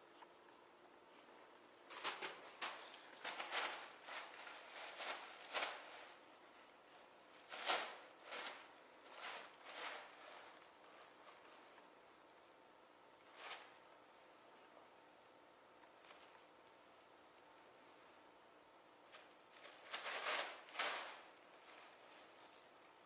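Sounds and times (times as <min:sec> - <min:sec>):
plastic bag crinkling: 0:01.9 - 0:06.7, 0:07.3 - 0:11.8, 0:19.0 - 0:23.0.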